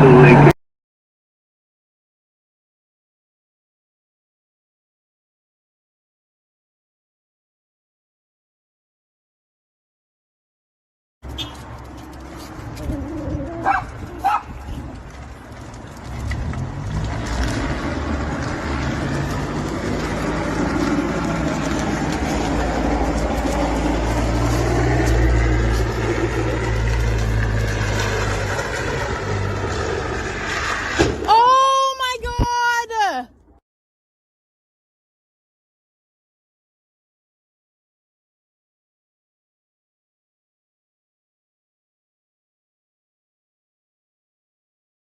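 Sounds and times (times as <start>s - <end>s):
vehicle road and engine rumble: 0.0s - 0.6s, 11.2s - 33.6s.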